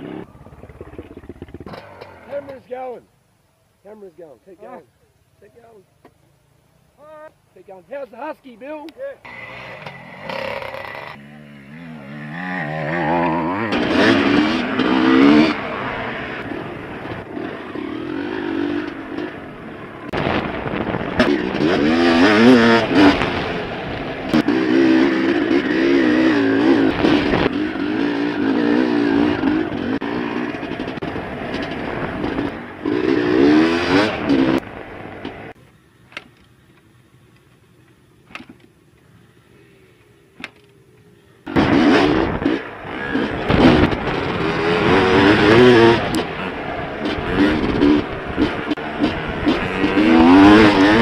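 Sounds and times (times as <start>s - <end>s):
dirt bike engine revving: 0.0s - 2.6s, 9.2s - 35.6s, 41.4s - 51.0s.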